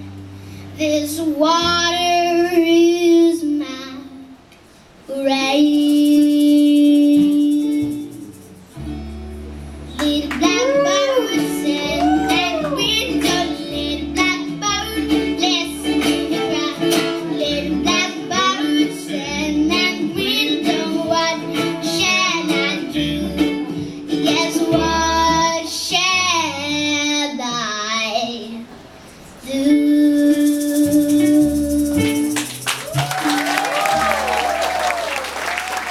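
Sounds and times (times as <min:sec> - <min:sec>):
girl singing with vibrato: 0:00.7 - 0:04.4, 0:05.1 - 0:08.3, 0:09.9 - 0:28.7, 0:29.4 - 0:32.4
plucked-string band with guitar and bass: 0:05.6 - 0:28.0, 0:29.0 - 0:33.1.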